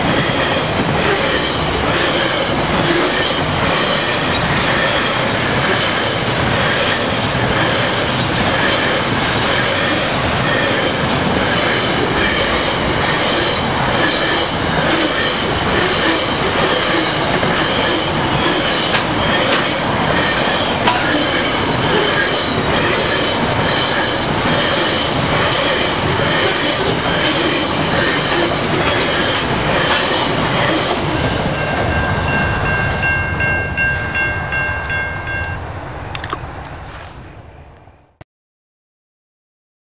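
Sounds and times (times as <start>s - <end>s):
train wheels rattling on rail: 0.0s - 37.1s
high ringing tones: 31.2s - 35.8s.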